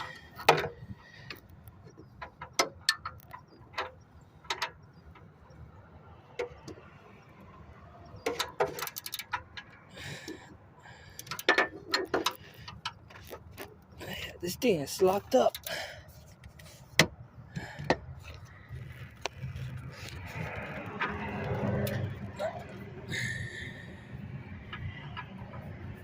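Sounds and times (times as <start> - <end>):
hand tools clicking on metal: 8.2 - 10.4, 11.1 - 15.9.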